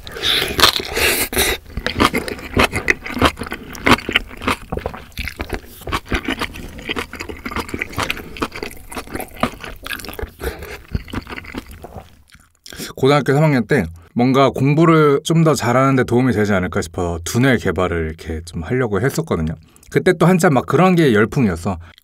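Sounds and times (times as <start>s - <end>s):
wet chewing and smacking: 0.0s - 12.8s.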